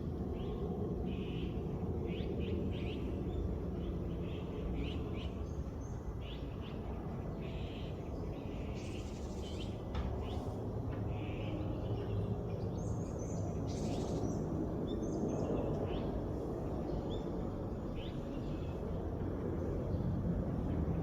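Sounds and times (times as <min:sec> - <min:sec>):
birds calling with buzzy chirps: 0:00.4 - 0:19.0.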